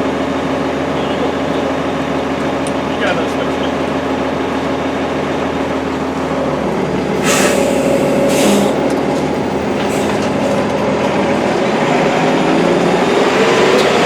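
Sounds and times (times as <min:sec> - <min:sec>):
vehicle motor hum: 0:00.0 - 0:14.0
short hissing bursts: 0:07.2 - 0:08.9.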